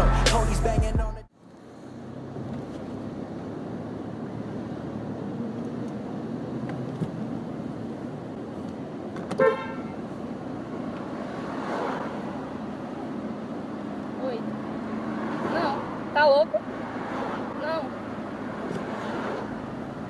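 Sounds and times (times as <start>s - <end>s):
street traffic noise: 0.0s - 20.0s
car horn toot: 9.3s - 10.1s.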